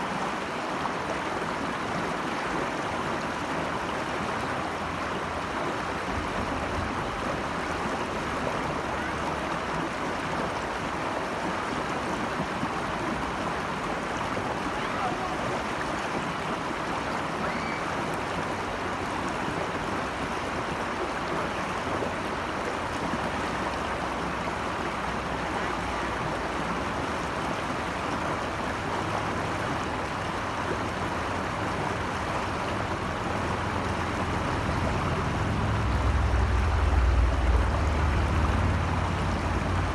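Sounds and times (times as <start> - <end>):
stream water rushing: 0.0 - 39.9
low rumble: 34.7 - 39.9.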